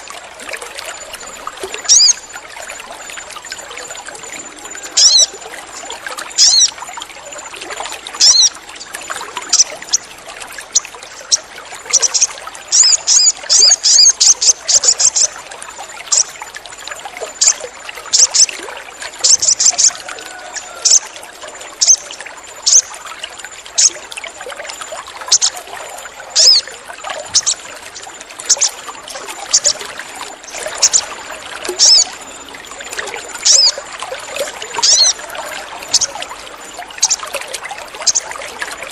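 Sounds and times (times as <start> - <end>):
bird chirping: 1.8 - 2.3, 4.7 - 5.3, 6.4 - 6.8, 8.2 - 8.6, 11.3 - 15.4, 21.8 - 22.9, 25.3 - 25.6, 26.4 - 26.7, 27.3 - 27.6, 28.5 - 28.8, 30.5 - 31.1, 31.8 - 32.6, 33.4 - 33.8, 34.8 - 35.2, 37.0 - 37.3, 38.0 - 38.3.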